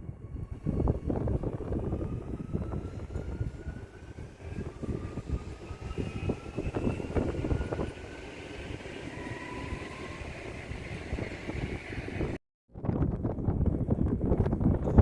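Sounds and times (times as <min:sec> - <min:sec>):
thin whining tones: 0:00.5 - 0:12.4
train knocking and clatter: 0:00.9 - 0:12.4.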